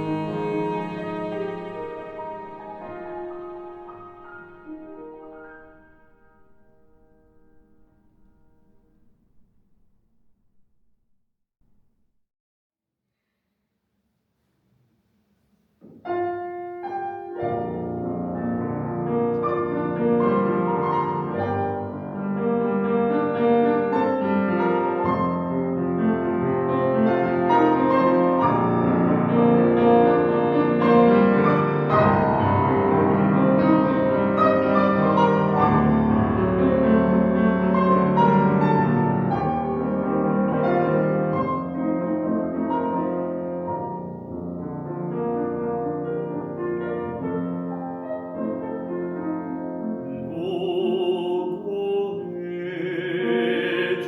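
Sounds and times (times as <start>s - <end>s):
classical piano music: 0.0s - 10.0s, 15.8s - 54.0s.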